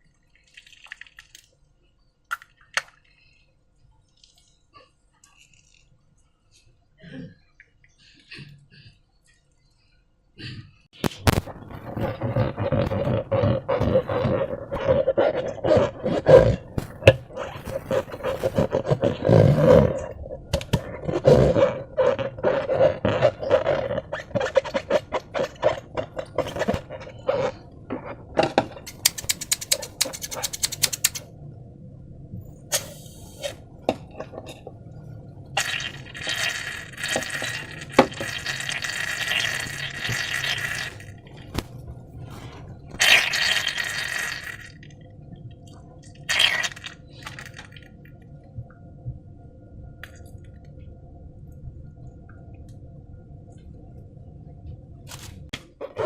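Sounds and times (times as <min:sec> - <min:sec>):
sticky slime squelching: 0:11.0 - 0:31.2, 0:46.2 - 0:47.8.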